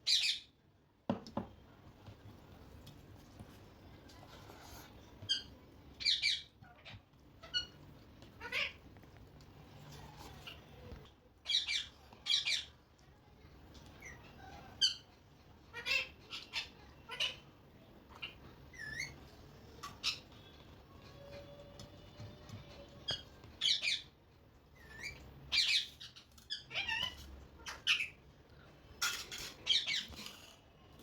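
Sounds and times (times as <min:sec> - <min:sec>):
parrot squawking and chirping: 0:00.0 - 0:00.6, 0:04.8 - 0:08.8, 0:11.4 - 0:12.8, 0:14.0 - 0:17.5, 0:18.1 - 0:21.4, 0:22.8 - 0:28.3, 0:29.0 - 0:30.5.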